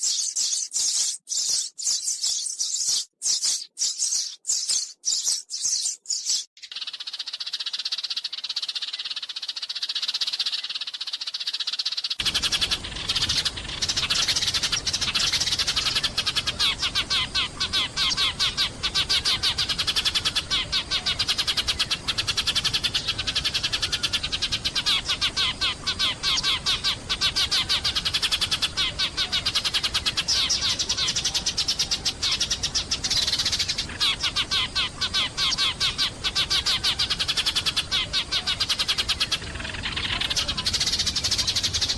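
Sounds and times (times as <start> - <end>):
sparrows chirping: 0.0 - 41.9
low steady hiss: 12.2 - 41.9.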